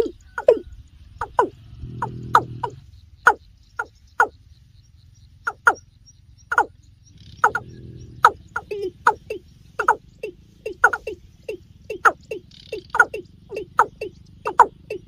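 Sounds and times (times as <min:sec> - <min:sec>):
bird calling with descending notes: 0:00.0 - 0:15.0.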